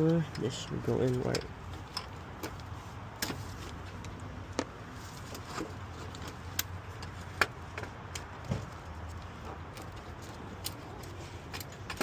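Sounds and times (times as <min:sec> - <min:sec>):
light metal clicks and knocks: 0:00.0 - 0:12.0.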